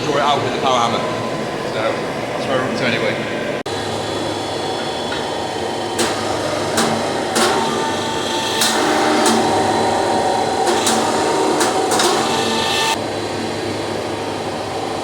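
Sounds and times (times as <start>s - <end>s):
workshop machine hum: 0.0s - 15.0s
hammer ringing on steel: 6.0s - 13.0s.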